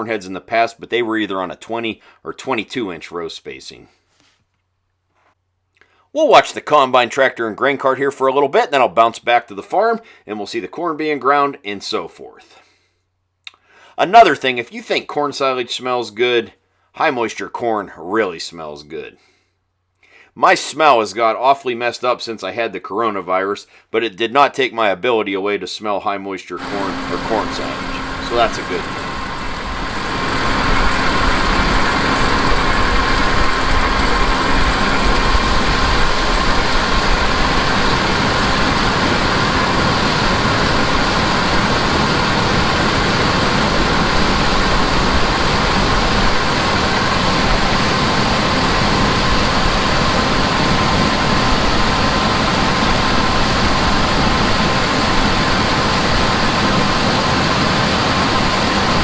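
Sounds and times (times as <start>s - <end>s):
tractor running: 26.6s - 57.1s
combine harvester running: 26.6s - 59.0s.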